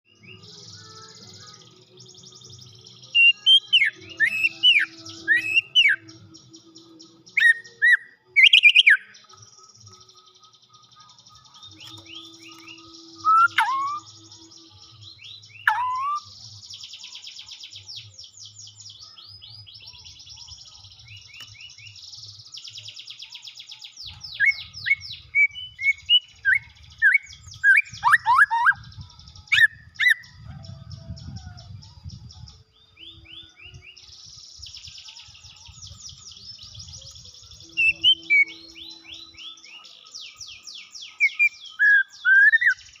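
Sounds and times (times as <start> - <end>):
bird whistled song phrases: 0.1 - 43.0.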